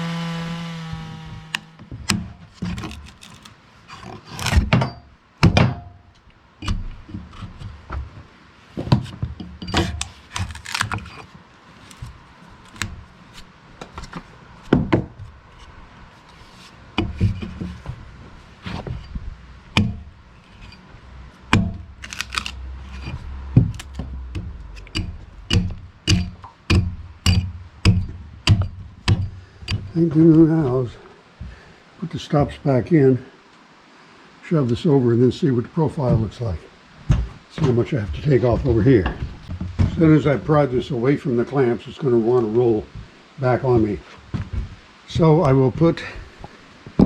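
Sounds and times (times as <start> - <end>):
low steady hum: 0.0 - 47.0
tools knocking and scraping on wood: 0.8 - 30.5, 37.0 - 40.5.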